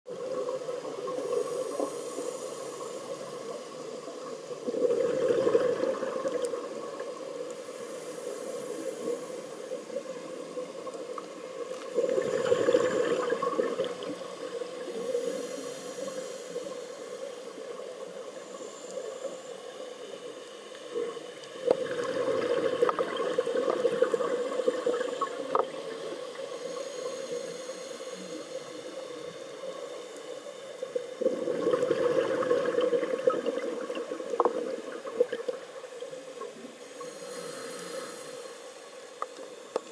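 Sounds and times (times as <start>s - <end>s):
regulator hiss: 0.5s - 4.6s, 6.8s - 21.8s, 24.3s - 31.2s, 36.1s - 39.9s
exhaled bubbles rushing: 4.6s - 6.8s, 12.0s - 14.4s, 21.7s - 25.4s, 31.2s - 35.6s.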